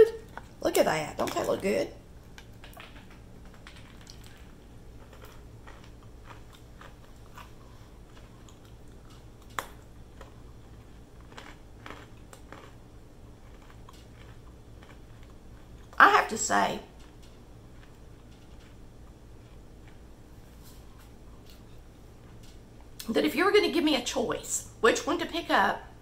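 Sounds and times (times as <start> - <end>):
chewing crunchy brittle: 2.3 - 16.0, 16.9 - 20.2.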